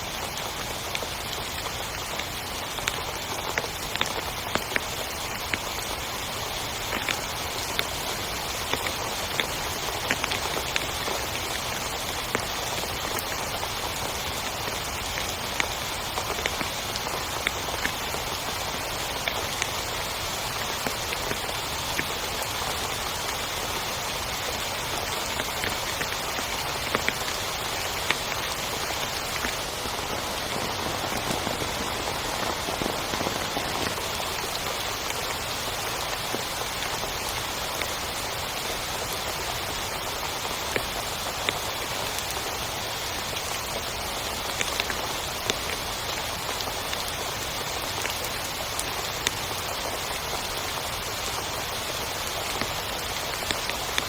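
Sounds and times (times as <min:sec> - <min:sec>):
heavy rain hiss: 0:00.0 - 0:54.0
raindrop taps: 0:02.2 - 0:06.0, 0:06.8 - 0:23.6, 0:24.5 - 0:38.0.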